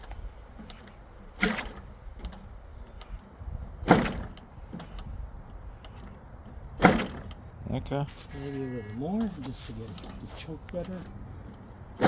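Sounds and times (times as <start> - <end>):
propeller swishing: 0.0 - 12.0.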